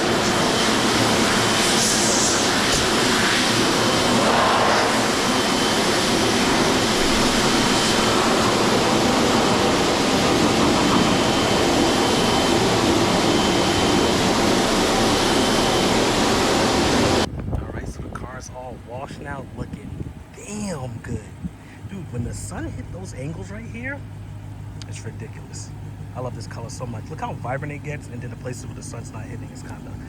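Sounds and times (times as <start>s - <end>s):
car wash air blowers: 0.0s - 17.3s.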